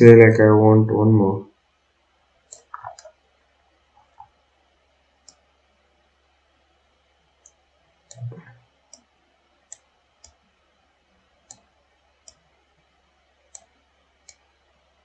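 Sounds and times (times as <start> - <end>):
computer mouse clicking: 2.5 - 3.1, 5.2 - 5.4, 7.4 - 9.1, 9.7 - 10.4, 11.4 - 12.5, 13.5 - 14.5.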